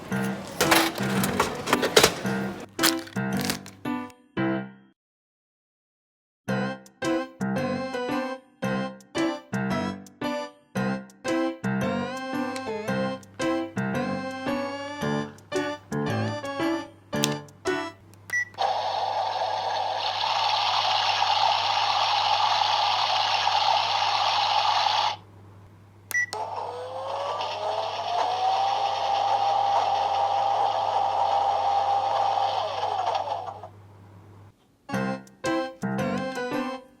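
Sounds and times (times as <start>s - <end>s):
toy washing machine whine: 0.0s - 3.8s, 18.4s - 25.2s, 26.2s - 33.8s
tinny water-like hiss with hum: 18.8s - 25.3s.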